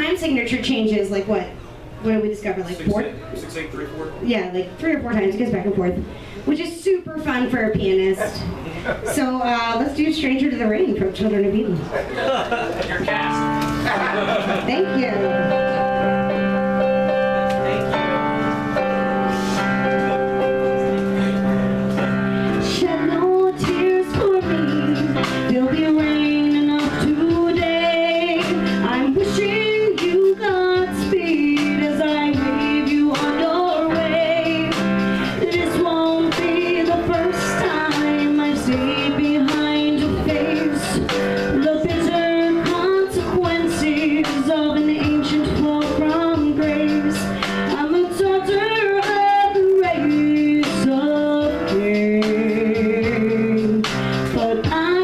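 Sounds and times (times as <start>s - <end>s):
piano accompaniment: 0.0s - 55.0s
woman singing a slow ballad: 22.5s - 55.0s.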